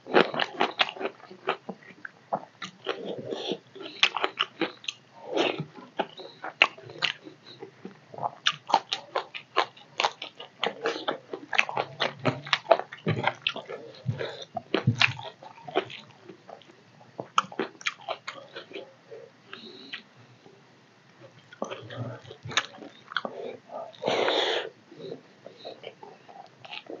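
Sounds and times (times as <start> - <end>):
wet chewing and lip-smacking: 0.2 - 18.9.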